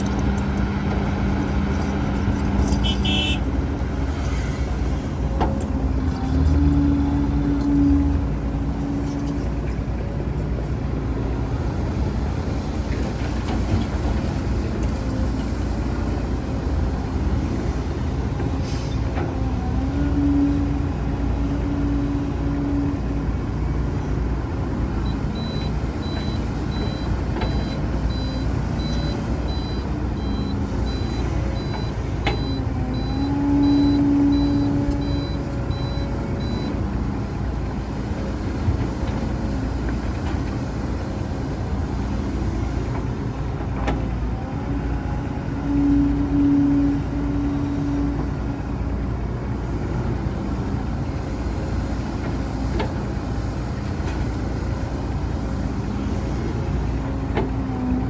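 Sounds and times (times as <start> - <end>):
heavy diesel machinery running: 0.0 - 58.0
reversing alarm beeping: 25.1 - 36.8.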